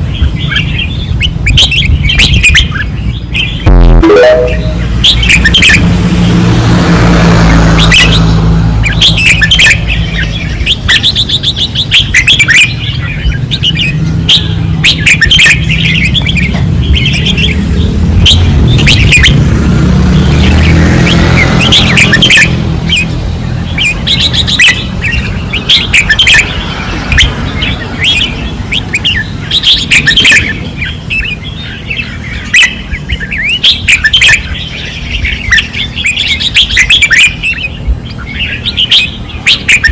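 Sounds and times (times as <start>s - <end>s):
bulbuls chirping: 0.0s - 5.9s, 7.8s - 19.5s, 20.1s - 39.9s
low rumble: 3.7s - 4.0s.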